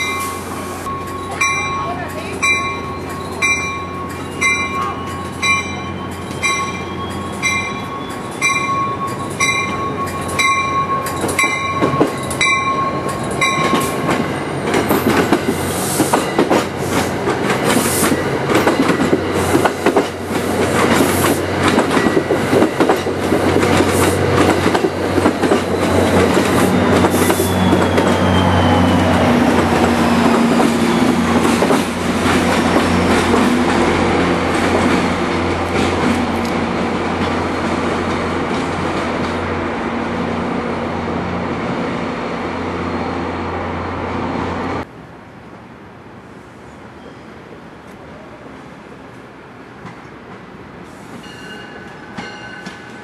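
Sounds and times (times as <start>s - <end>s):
diesel locomotive drone: 0.0s - 53.0s
bell dinging: 0.9s - 13.8s
train wheels clicking over joints: 7.5s - 39.5s
faint wheel squeal: 27.2s - 29.1s.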